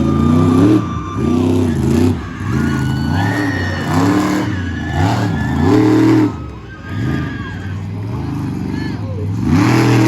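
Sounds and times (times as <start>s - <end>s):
monster truck engine revving: 0.0s - 10.0s.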